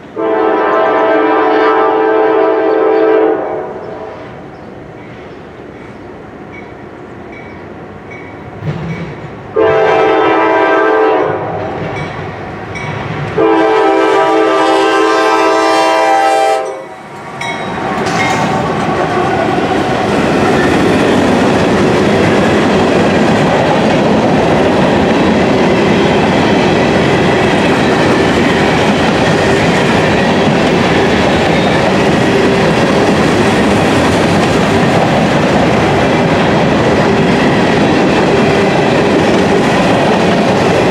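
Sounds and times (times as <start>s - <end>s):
locomotive horn blasts: 0.2s - 4.1s, 9.6s - 11.6s, 13.4s - 16.9s
train wheels rumbling on rails: 4.1s - 40.9s.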